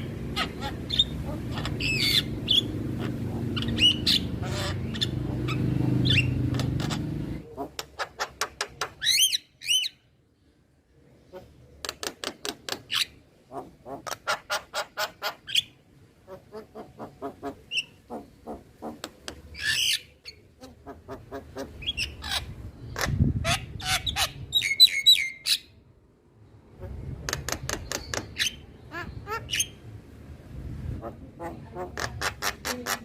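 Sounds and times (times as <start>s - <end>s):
myna harsh clicking calls: 0.4s - 9.4s, 11.8s - 15.6s, 16.6s - 23.2s, 27.2s - 28.7s.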